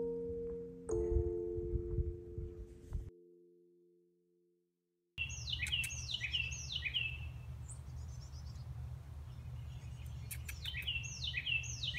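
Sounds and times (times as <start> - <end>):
songbird whistling: 5.2 - 7.3, 9.8 - 11.9.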